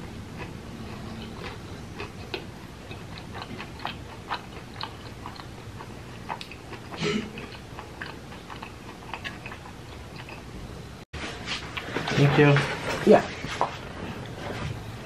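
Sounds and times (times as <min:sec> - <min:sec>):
close-up chewing: 0:00.0 - 0:10.5.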